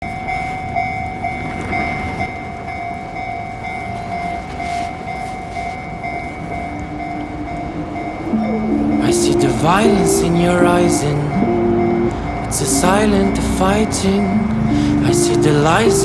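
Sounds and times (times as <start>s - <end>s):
tram rumbling on rails: 0.0s - 16.0s
high whine: 6.6s - 16.0s.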